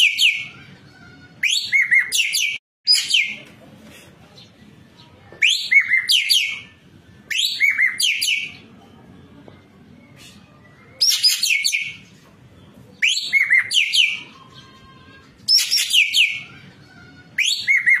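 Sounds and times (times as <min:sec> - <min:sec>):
songbird singing whistled phrases: 0:00.0 - 0:00.6, 0:01.4 - 0:03.4, 0:05.3 - 0:08.7, 0:10.0 - 0:12.1, 0:12.9 - 0:14.7, 0:15.5 - 0:16.6, 0:17.2 - 0:18.0.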